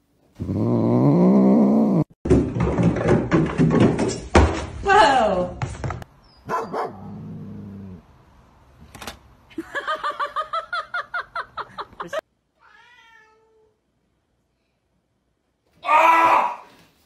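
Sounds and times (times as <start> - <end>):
cat meowing: 12.6 - 13.7.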